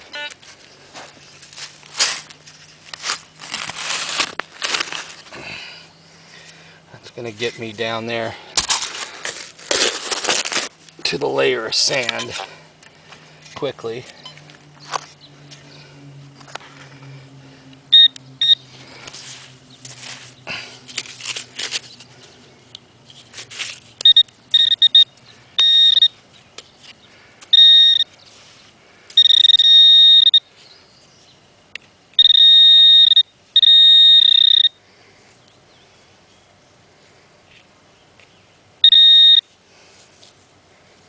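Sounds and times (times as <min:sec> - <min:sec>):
metal detector beeping: 0:00.0 - 0:00.4, 0:17.9 - 0:18.6, 0:24.0 - 0:26.2, 0:27.5 - 0:28.2, 0:29.1 - 0:30.5, 0:32.2 - 0:34.8, 0:38.8 - 0:39.5.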